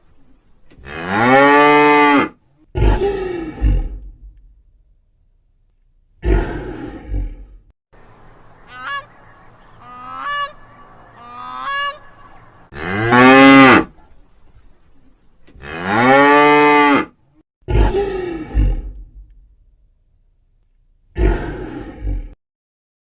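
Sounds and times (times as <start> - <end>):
animal calls: 8.6 - 12.8.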